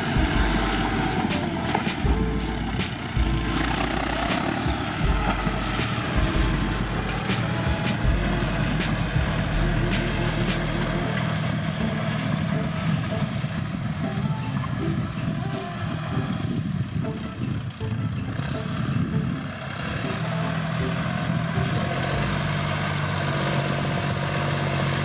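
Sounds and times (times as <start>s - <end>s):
deep low rumble: 0.0s - 13.3s
tractor engine running: 0.0s - 25.0s.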